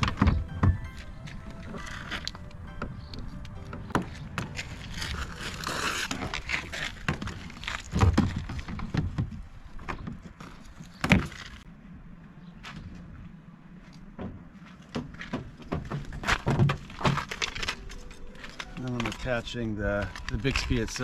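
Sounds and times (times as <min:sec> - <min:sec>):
rustling scrape: 0:04.0 - 0:08.9.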